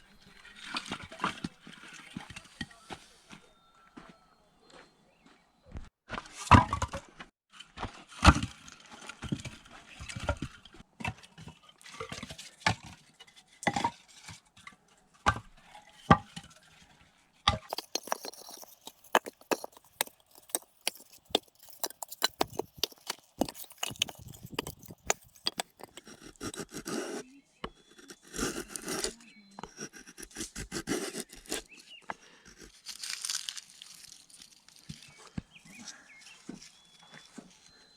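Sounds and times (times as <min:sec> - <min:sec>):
firewood knocking and scraping: 0:17.7 - 0:27.0.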